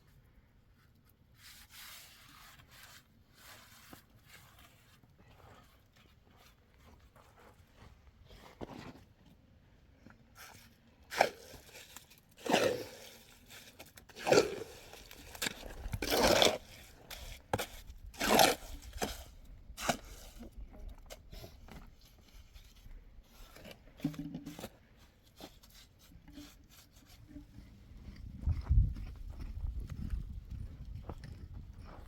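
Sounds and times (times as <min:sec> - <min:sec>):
rough scraping crunching strokes: 0:01.4 - 0:09.1, 0:10.4 - 0:32.0.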